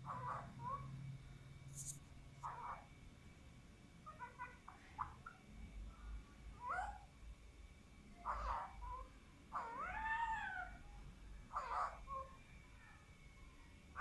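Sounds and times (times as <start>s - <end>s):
parakeet calls: 0.0s - 0.9s, 1.8s - 2.8s, 8.2s - 9.8s, 11.5s - 12.2s.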